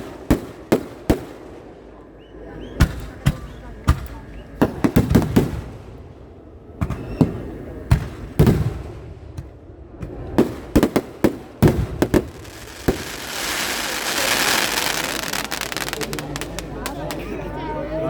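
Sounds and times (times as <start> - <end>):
fireworks bangs: 2.8 - 6.2, 6.8 - 17.2.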